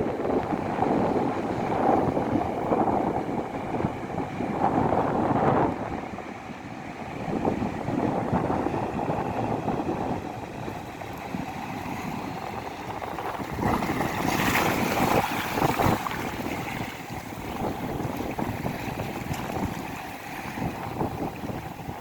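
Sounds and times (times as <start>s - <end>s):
surf rushing: 0.0s - 22.0s
wind buffeting microphone: 0.0s - 22.0s.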